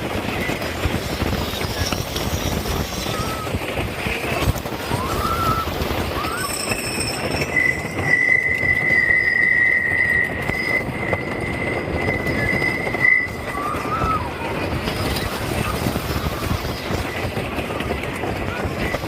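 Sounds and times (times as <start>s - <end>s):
roller coaster rumbling on track: 0.0s - 19.0s
high wheel squeal: 4.9s - 16.9s.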